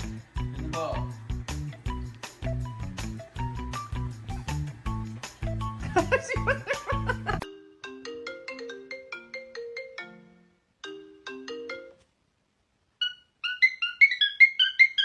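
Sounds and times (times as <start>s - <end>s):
plucked ringtone melody: 5.4s - 12.0s.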